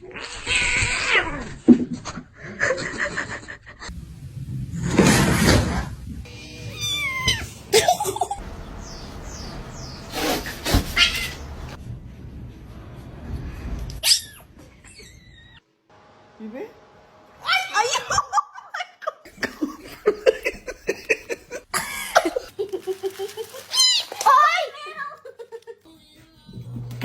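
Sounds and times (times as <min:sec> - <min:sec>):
cats meowing: 0:06.3 - 0:07.6, 0:10.8 - 0:11.5.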